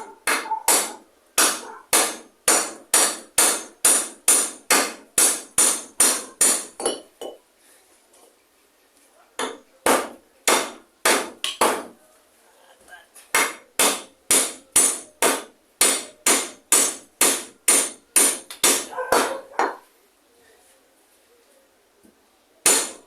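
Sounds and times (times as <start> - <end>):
hammer blows ringing: 0.2 - 7.0, 13.4 - 19.8.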